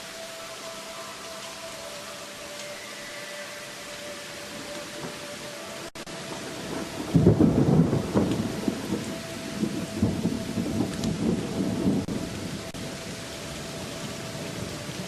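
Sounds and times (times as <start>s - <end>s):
steady rain: 0.0s - 15.0s
thunder rolling: 6.1s - 15.0s.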